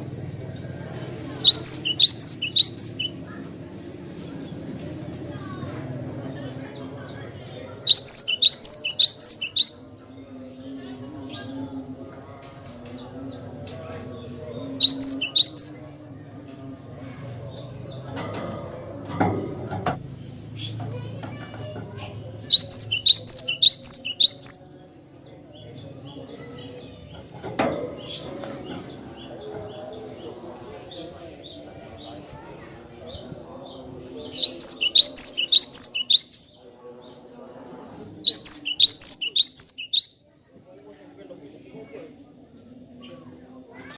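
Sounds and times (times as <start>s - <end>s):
faint high bird chirps: 1.2s - 3.2s, 7.0s - 9.9s, 14.7s - 15.9s, 22.0s - 24.8s, 33.1s - 36.6s, 38.2s - 40.2s
bird whistling song: 1.4s - 3.2s, 7.8s - 9.8s, 14.8s - 15.8s, 22.5s - 24.6s, 34.4s - 36.6s, 38.3s - 40.2s.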